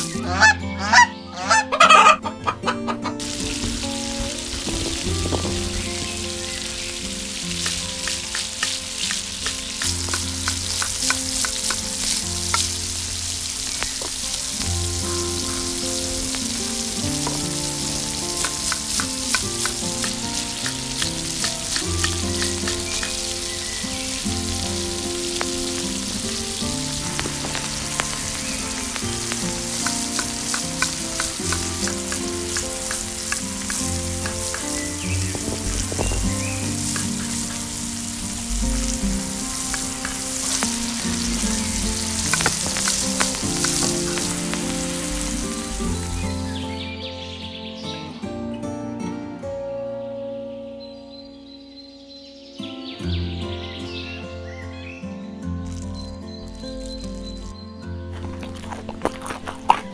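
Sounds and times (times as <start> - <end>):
background music: 0.0 - 59.9
vegetables sizzling in oil: 3.1 - 46.8, 58.2 - 59.9.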